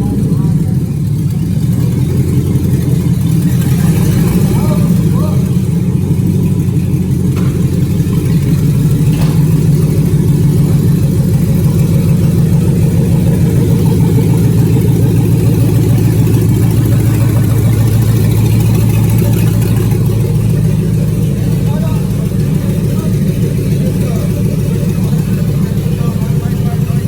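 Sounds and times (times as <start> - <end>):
truck engine running: 0.0 - 27.0.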